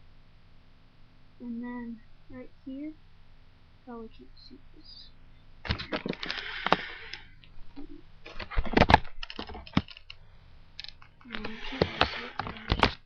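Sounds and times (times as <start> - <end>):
plastic bricks clicking and rattling: 8.3 - 10.2.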